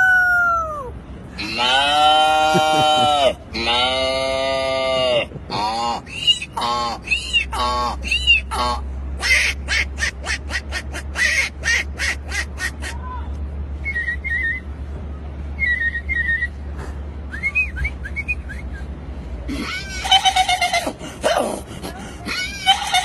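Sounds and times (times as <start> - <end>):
man imitating bird calls: 0.0 - 13.0.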